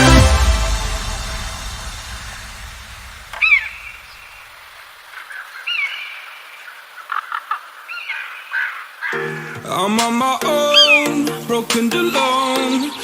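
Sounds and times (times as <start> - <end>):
background music: 0.0 - 3.3, 9.2 - 13.0
bird calling: 3.4 - 9.8, 10.6 - 11.3.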